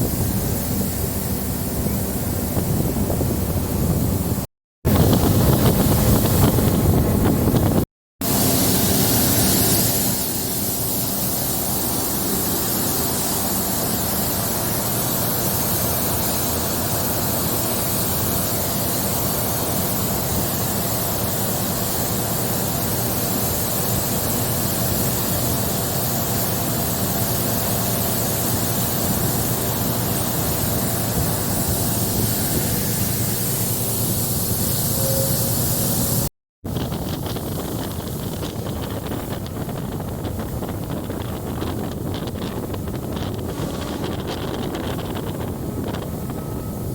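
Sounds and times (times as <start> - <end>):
wind buffeting microphone: 0.0 - 7.9, 36.7 - 46.9
train wheels and engine rumbling: 0.0 - 46.9.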